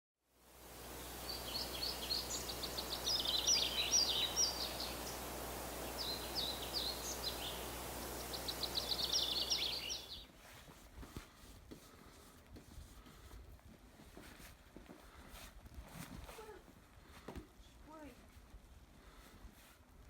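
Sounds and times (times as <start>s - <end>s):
outdoor background hiss: 0.2s - 20.0s
songbird singing high notes: 0.6s - 10.3s.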